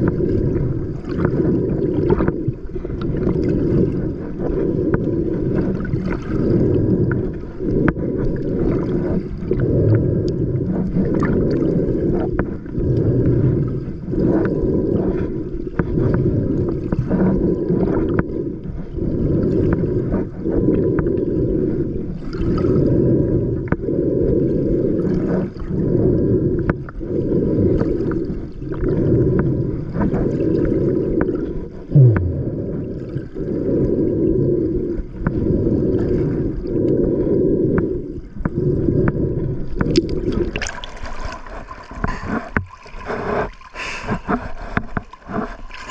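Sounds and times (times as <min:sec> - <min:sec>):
muffled water sloshing: 0:00.0 - 0:45.9
falling low tone: 0:32.0 - 0:32.6.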